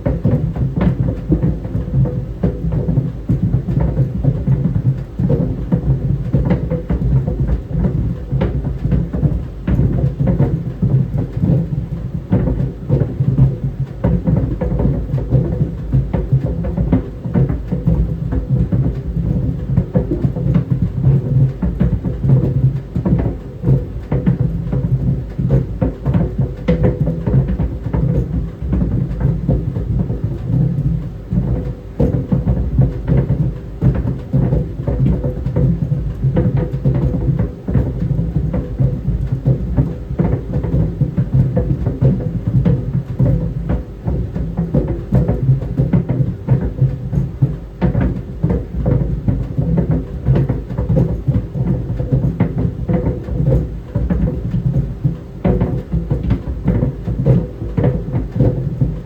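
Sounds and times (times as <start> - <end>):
balls thumping in clothes dryer: 0.0 - 59.0.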